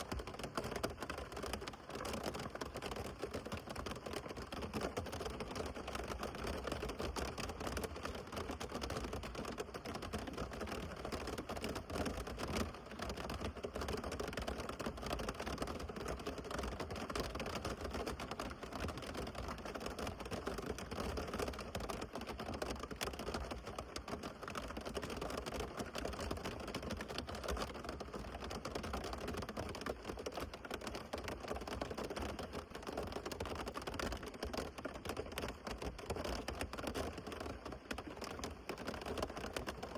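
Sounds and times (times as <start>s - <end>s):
heavy rain pattering: 21.0s - 39.9s.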